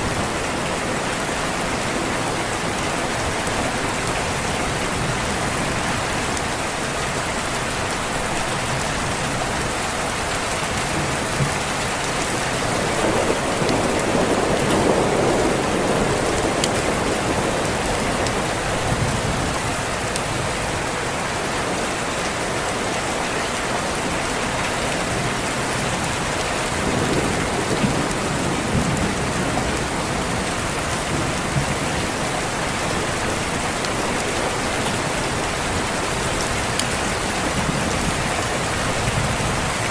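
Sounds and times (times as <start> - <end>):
heavy rain: 0.0 - 39.9
thunder rumbling: 11.0 - 20.9, 26.1 - 39.9.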